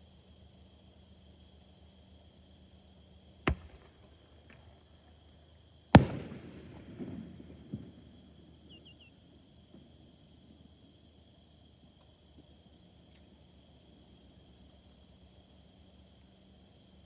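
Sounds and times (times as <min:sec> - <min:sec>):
crickets chirping: 0:00.0 - 0:17.0
small pops: 0:03.5 - 0:04.7, 0:06.0 - 0:08.0
firework shells bursting: 0:03.5 - 0:04.9, 0:06.0 - 0:08.9.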